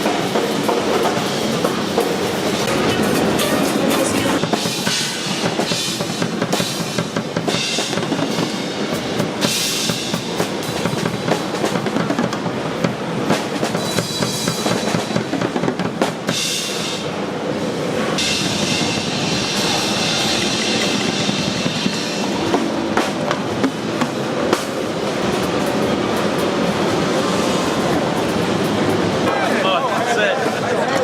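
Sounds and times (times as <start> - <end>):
cymbal wash: 1.3 - 11.3, 18.2 - 25.5.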